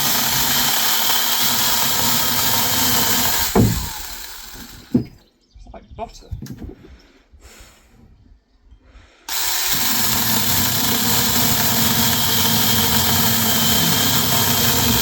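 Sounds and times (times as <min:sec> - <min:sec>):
mini chainsaw cutting wood: 0:00.0 - 0:05.0, 0:09.3 - 0:15.0.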